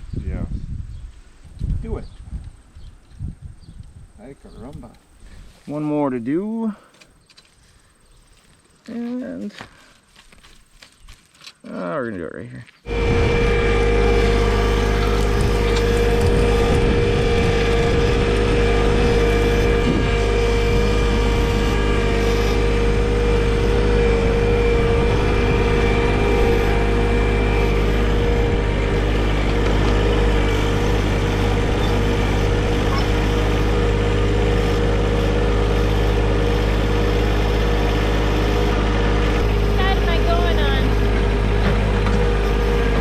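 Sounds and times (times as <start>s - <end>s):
diesel tractor engine running: 12.9s - 43.0s.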